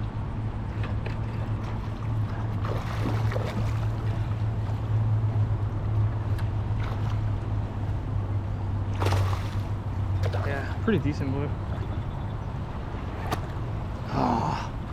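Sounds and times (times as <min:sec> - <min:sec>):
steady low hum: 0:00.0 - 0:14.9
water sloshing against kayak hull: 0:00.6 - 0:05.6, 0:08.8 - 0:14.1
faint knocks and splashes: 0:00.7 - 0:05.0, 0:06.2 - 0:07.9, 0:08.9 - 0:12.1, 0:12.8 - 0:14.1.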